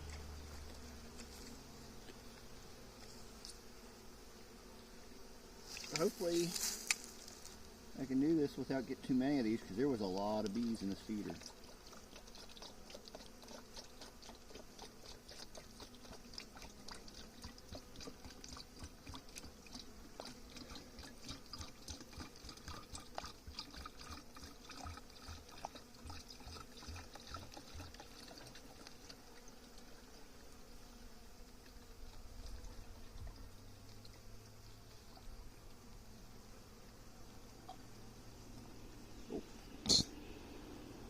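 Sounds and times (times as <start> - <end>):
faint hum of honeybees: 0.0 - 41.0
syrup trickling and dripping: 11.4 - 29.9.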